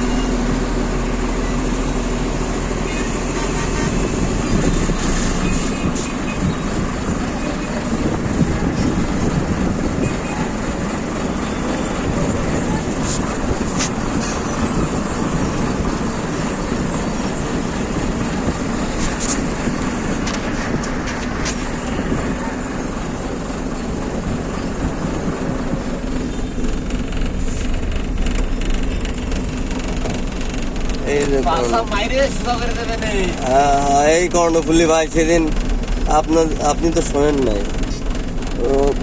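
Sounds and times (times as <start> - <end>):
truck engine rumble: 0.0 - 39.0
sharp rattling clicks: 26.5 - 31.5.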